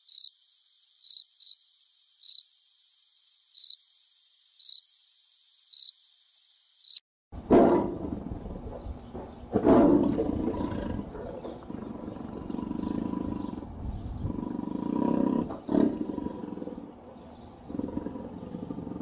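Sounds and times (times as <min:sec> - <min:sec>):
tiger roaring: 0:07.5 - 0:08.7, 0:09.5 - 0:19.0
low pulsing tiger rumble: 0:07.8 - 0:19.0.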